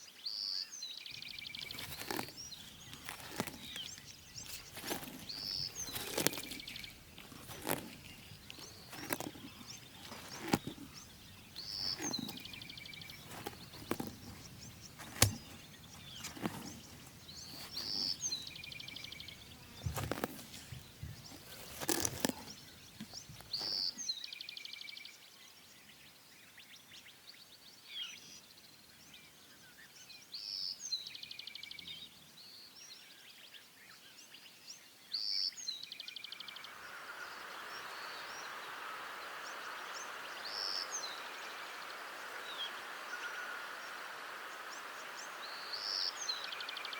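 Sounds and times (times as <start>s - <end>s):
snaps and rustles: 1.2s - 24.0s.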